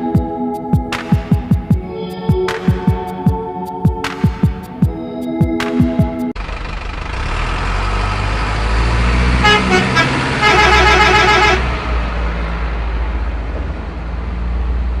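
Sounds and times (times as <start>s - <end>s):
truck engine rumbling: 6.3s - 15.0s
truck horn honking: 9.3s - 11.9s.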